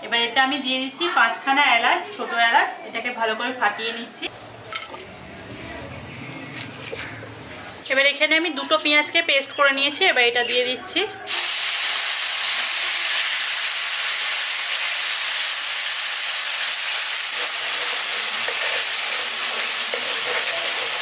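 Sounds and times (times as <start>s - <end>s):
onion paste sizzling in hot oil: 11.2s - 21.0s
wooden spatula stirring: 17.4s - 21.0s.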